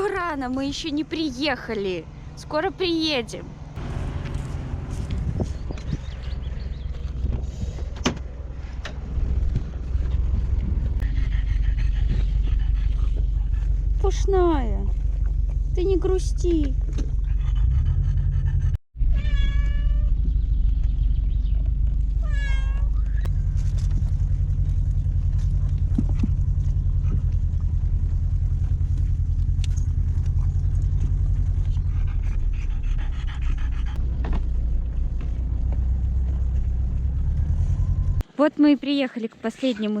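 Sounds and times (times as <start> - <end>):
car driving rumble: 0.0 - 38.3
cat meowing: 19.1 - 20.1, 22.2 - 23.2.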